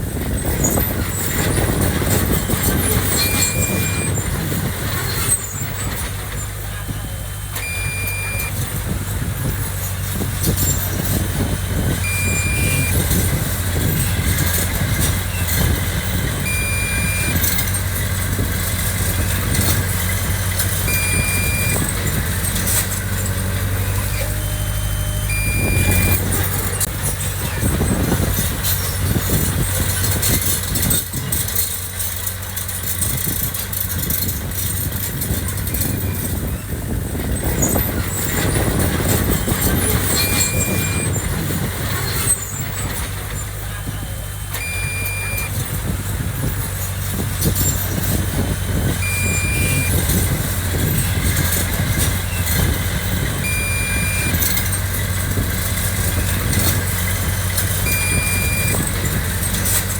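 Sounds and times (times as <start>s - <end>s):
heavy machinery diesel engine: 0.0s - 59.9s
short high beeps: 3.0s - 4.2s, 7.4s - 8.7s, 12.0s - 13.2s, 16.4s - 17.7s, 20.9s - 22.0s, 23.9s - 26.9s, 39.4s - 41.2s, 44.4s - 45.6s, 49.0s - 50.1s, 53.4s - 54.7s, 57.8s - 58.9s.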